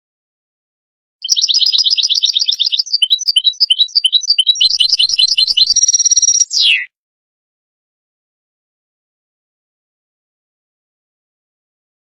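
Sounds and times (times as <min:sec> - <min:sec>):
goldfinch song: 0:01.2 - 0:06.9.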